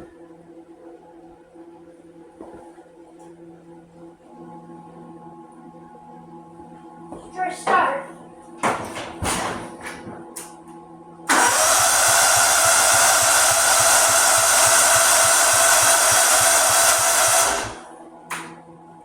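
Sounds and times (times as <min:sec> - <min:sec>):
lawnmower starter cranking engine: 0:11.3 - 0:17.8.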